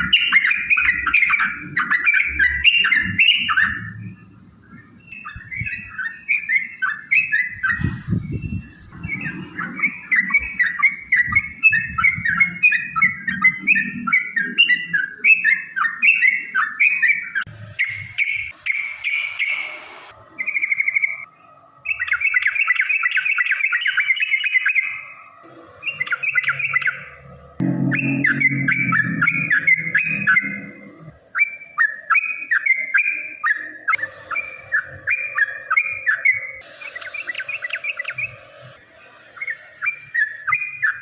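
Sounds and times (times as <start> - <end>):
bulbul singing chirped notes: 21.9 - 41.0
low rumble: 26.6 - 31.2.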